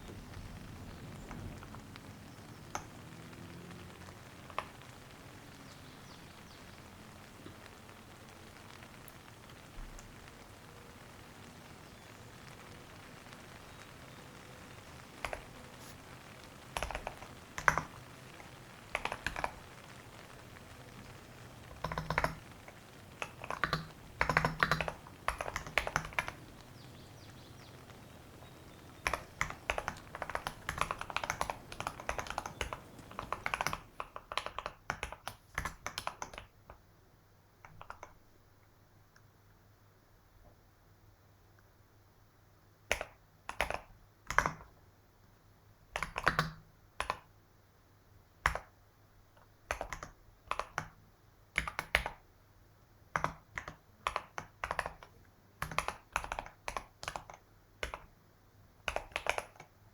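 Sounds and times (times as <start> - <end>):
typing on keyboard: 0.0 - 6.0, 12.4 - 15.9, 16.5 - 36.8, 37.6 - 38.2, 42.9 - 44.8, 45.9 - 47.3, 48.4 - 48.8, 49.4 - 51.0, 51.6 - 52.3, 53.1 - 58.2, 58.8 - 59.8
faint hiss: 0.0 - 59.9.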